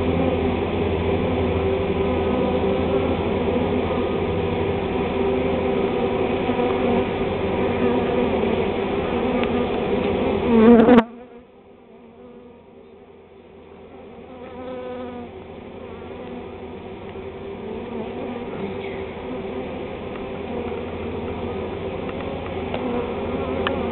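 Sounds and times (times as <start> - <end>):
bee swarm buzzing: 0.0 - 23.9.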